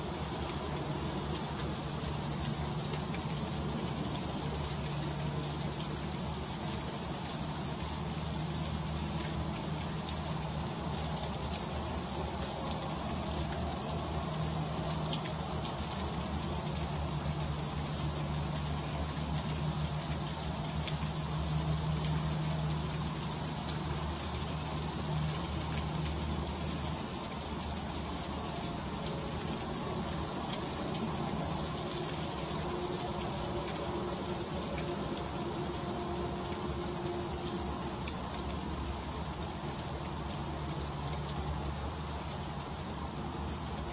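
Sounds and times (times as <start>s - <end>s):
freezing rain hissing: 0.0s - 43.9s.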